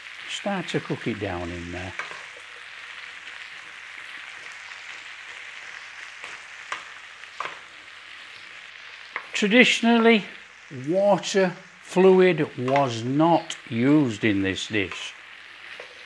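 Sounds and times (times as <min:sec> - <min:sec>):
vegetables sizzling in fat: 0:00.0 - 0:16.0.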